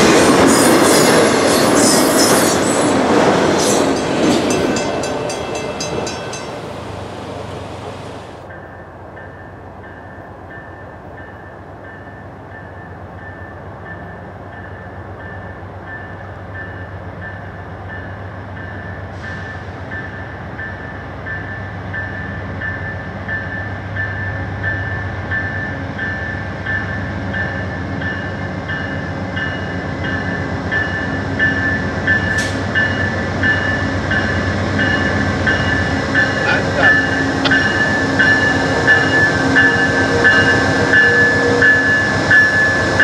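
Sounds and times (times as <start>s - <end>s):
distant train rumble: 0.0s - 43.0s
bell dinging: 34.8s - 42.6s.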